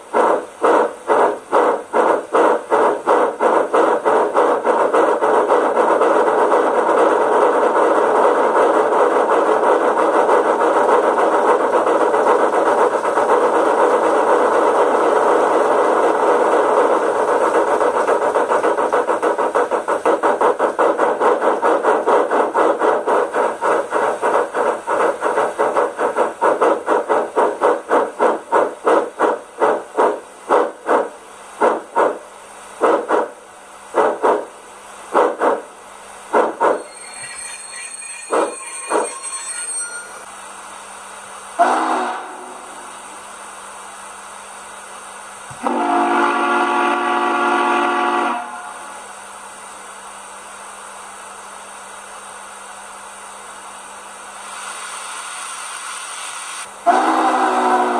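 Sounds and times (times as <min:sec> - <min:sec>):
steam exhaust chuffs from loudspeaker: 0:45.6 - 0:48.8, 0:56.8 - 0:57.9.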